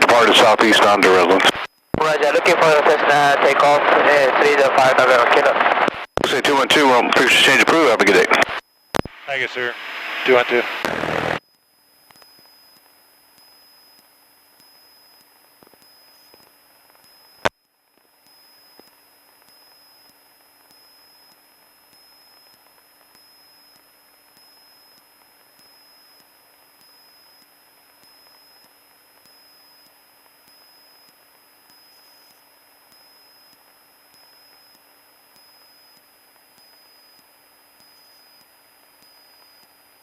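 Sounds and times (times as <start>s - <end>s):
radio static hiss: 0.0s - 11.4s
steady high whine: 0.0s - 11.4s
low hum: 9.8s - 11.4s.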